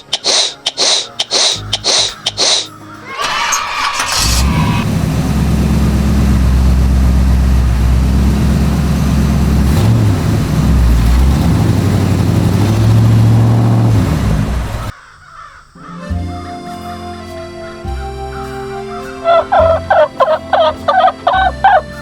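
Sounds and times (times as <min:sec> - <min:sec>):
vehicle engine running: 0:03.3 - 0:14.9, 0:19.2 - 0:22.0.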